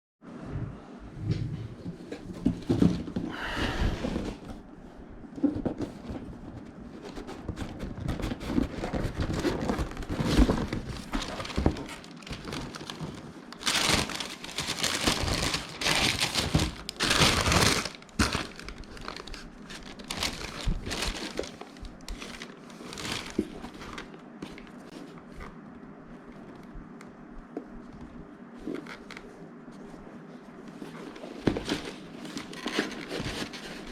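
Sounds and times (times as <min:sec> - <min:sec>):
packaging crinkling and rustling: 0:05.4 - 0:25.6, 0:30.6 - 0:33.9.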